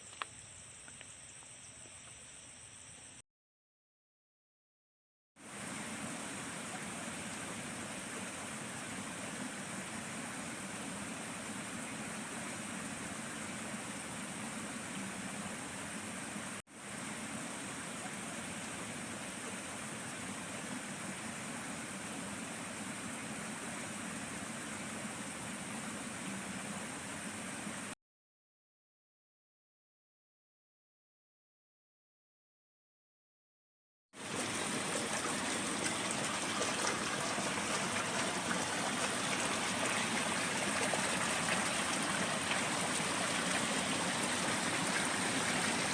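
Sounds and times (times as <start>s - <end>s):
water flowing through channels: 5.4s - 28.0s, 34.2s - 45.9s.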